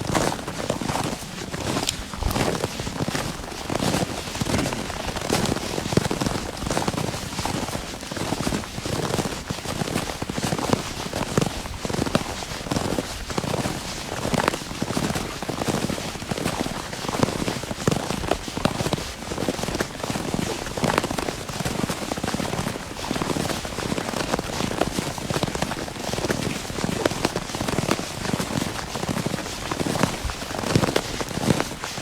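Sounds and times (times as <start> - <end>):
footsteps crunching through snow: 0.0 - 12.1.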